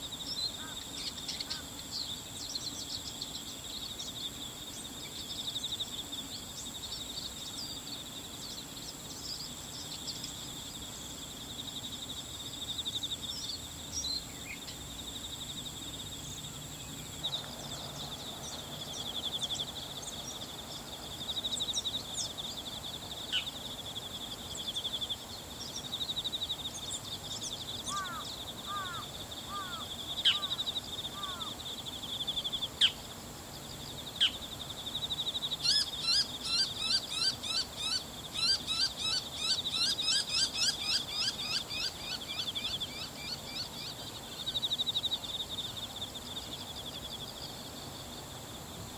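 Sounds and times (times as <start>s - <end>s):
insect chorus: 0.0s - 48.9s
shrike calling: 27.9s - 31.6s.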